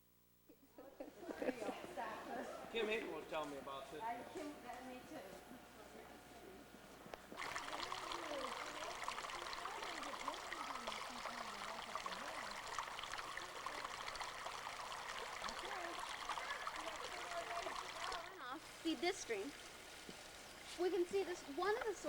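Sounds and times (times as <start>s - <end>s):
stream babbling over rocks: 7.4s - 22.0s.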